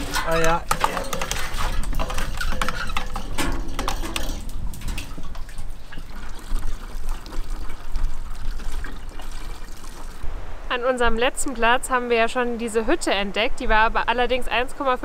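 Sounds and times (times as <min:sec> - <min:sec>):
water splashing and trickling: 0:00.0 - 0:10.3.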